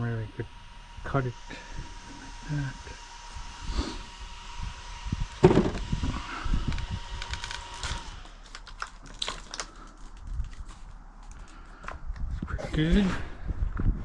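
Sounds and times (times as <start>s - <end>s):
thud: 5.4s - 5.8s.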